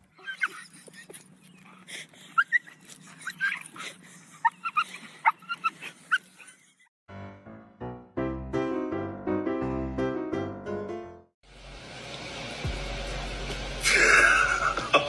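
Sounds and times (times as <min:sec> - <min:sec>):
dog whimpering and yipping: 0:00.0 - 0:06.9
piano music: 0:07.1 - 0:11.3.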